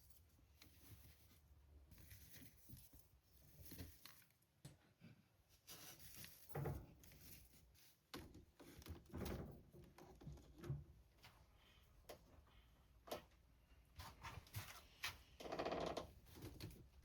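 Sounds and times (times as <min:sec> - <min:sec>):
soft rustles: 0:00.0 - 0:04.6, 0:05.5 - 0:09.1.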